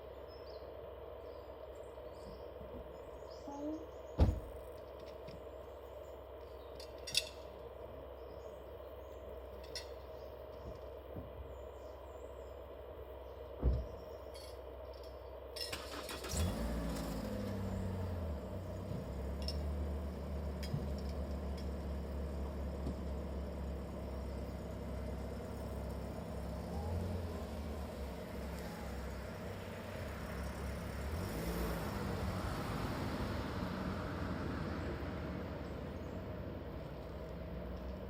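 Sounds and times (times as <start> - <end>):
vehicle engine humming: 0.0 - 38.0.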